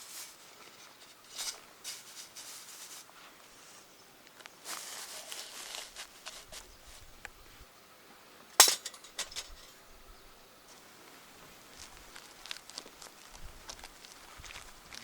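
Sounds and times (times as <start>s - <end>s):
steel parts clinking: 8.6s - 9.8s.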